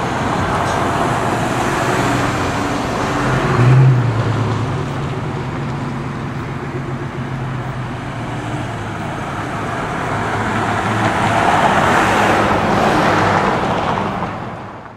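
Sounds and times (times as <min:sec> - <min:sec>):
vehicle engine running: 0:00.0 - 0:11.5
road traffic noise: 0:00.0 - 0:14.9.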